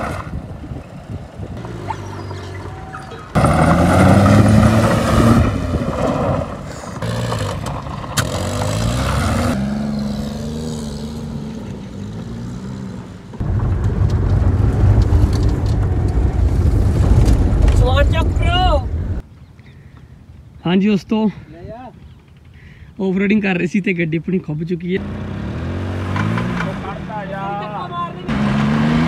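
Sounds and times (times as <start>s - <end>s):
car engine revving hard: 3.4s - 5.8s, 8.2s - 11.4s, 25.0s - 27.0s, 28.3s - 29.0s.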